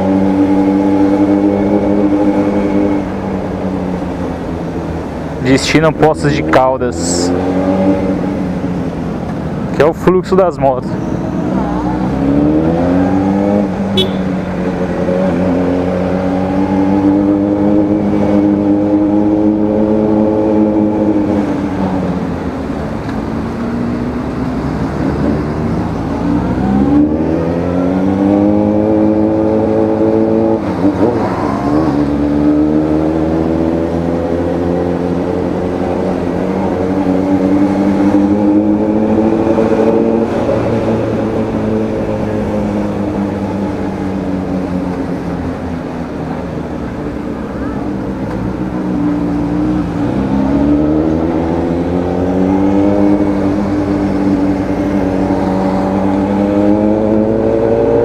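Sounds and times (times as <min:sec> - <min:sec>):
motorcycle engine revving: 0:11.7 - 0:46.1, 0:48.5 - 0:58.0.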